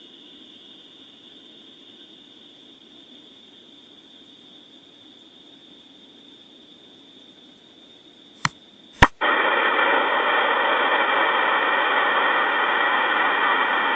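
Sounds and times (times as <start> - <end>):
loud static hiss: 8.4 - 13.9
sharp clicks: 8.4 - 13.9.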